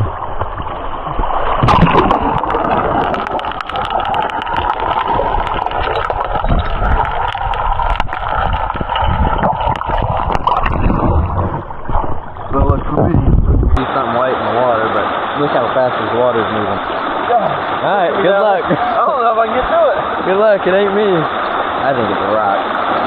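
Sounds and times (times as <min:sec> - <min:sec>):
river water rushing: 0:00.0 - 0:12.6, 0:13.8 - 0:23.0
small clicks and splashes: 0:00.4 - 0:11.2.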